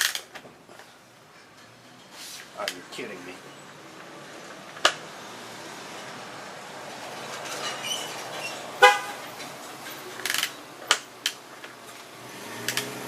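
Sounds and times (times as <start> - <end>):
short horn beep: 8.8 - 9.2.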